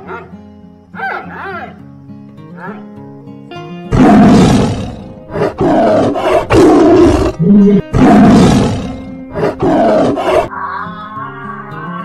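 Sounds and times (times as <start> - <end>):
background music: 0.0 - 12.0
large animal roaring: 3.9 - 12.0.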